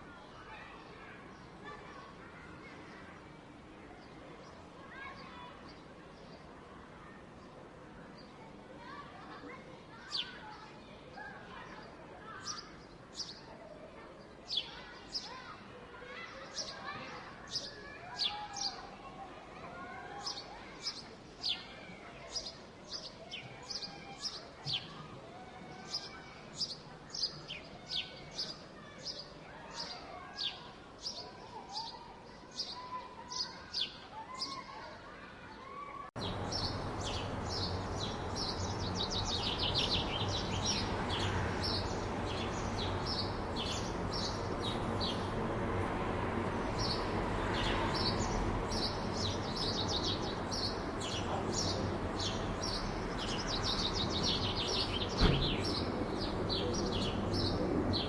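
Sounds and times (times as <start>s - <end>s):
low hum of city traffic: 0.0s - 58.0s
songbirds chirping: 0.0s - 58.0s
sharp knock: 55.2s - 55.8s.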